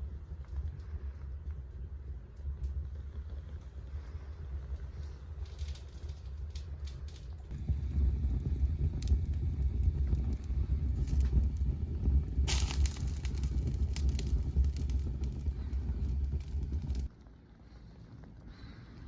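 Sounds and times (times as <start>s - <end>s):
scattered crackles: 0.0s - 19.0s
wind buffeting microphone: 7.3s - 17.1s.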